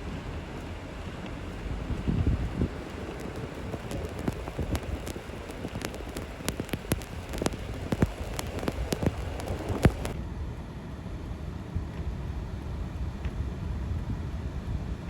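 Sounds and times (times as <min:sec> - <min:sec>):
steady hiss: 0:00.0 - 0:10.2
precipitation ticking on a surface: 0:01.2 - 0:10.2.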